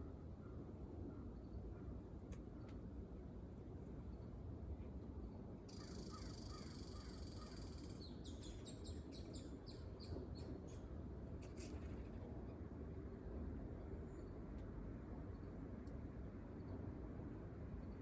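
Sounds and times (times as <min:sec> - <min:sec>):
small bird calling: 0:05.7 - 0:10.8.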